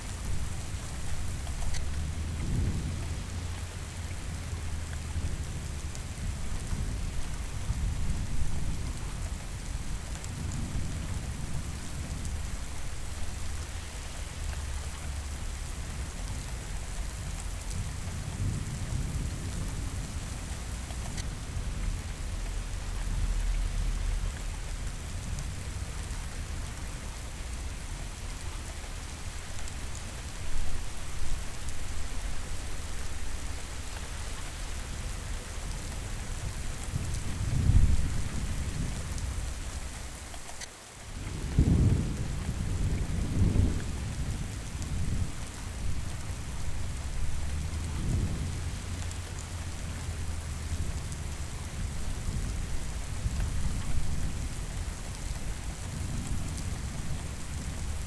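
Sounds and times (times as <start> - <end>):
steady rain: 0.0 - 58.0
thunder rumbling: 36.8 - 40.0, 41.2 - 58.0.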